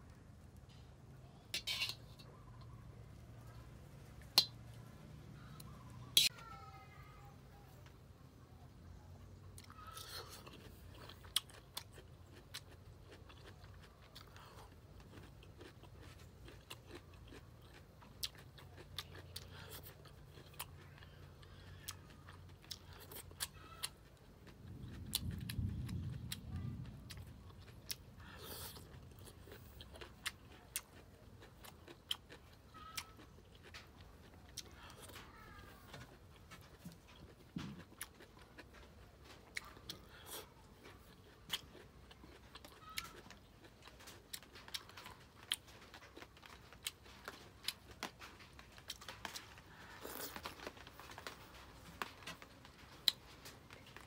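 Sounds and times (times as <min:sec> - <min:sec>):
chewing and crunching vegetables: 0:00.0 - 0:54.0.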